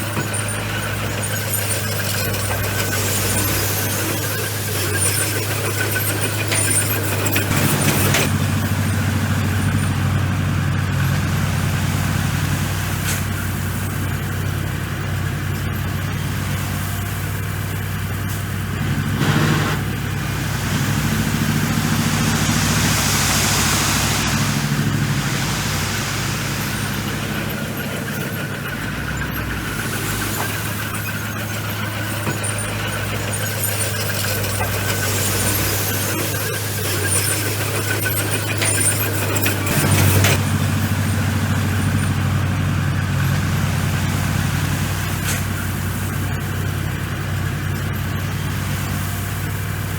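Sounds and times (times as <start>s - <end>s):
bulldozer diesel engine running: 0.0s - 49.9s
brief loud burst of noise: 19.2s - 27.9s.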